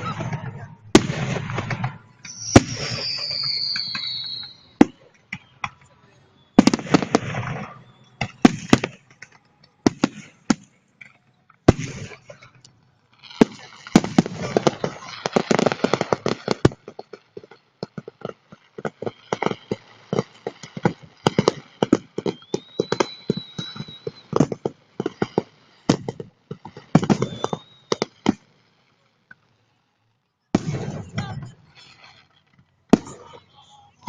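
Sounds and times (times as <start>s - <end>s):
firework high whistle: 0.0s - 9.0s, 13.2s - 16.6s, 18.8s - 26.1s, 26.7s - 28.5s, 30.6s - 34.0s
fireworks bursts and crackling pops: 0.0s - 34.0s.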